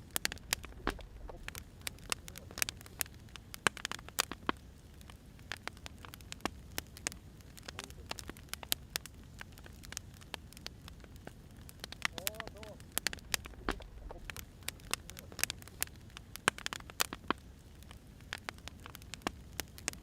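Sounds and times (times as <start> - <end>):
sharp pops: 0.0 - 4.6, 11.0 - 17.4
low fire rumble: 0.0 - 20.0
wood fire crackling: 0.0 - 20.0.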